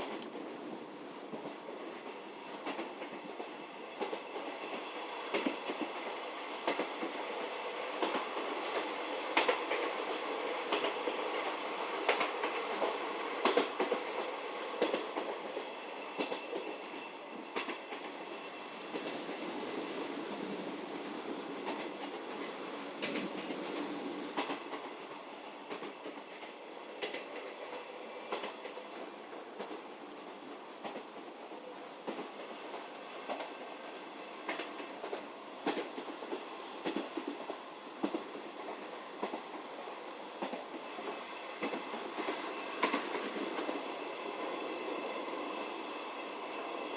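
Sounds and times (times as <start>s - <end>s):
train wheels rumbling on rails: 0.0s - 46.9s
clacks over rail joints: 8.0s - 9.9s, 12.0s - 15.3s, 21.6s - 25.0s, 25.7s - 28.8s, 30.8s - 31.3s, 34.4s - 39.6s, 40.4s - 44.0s.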